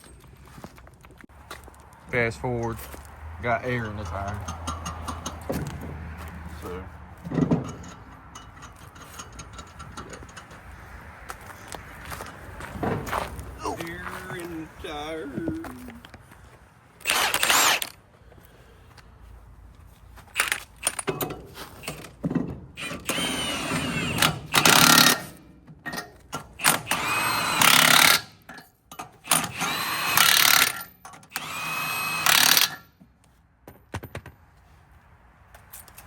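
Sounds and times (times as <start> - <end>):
impact wrench whining bursts: 17.0 - 18.0, 20.4 - 21.2, 22.8 - 25.4, 26.4 - 28.6, 29.2 - 32.9.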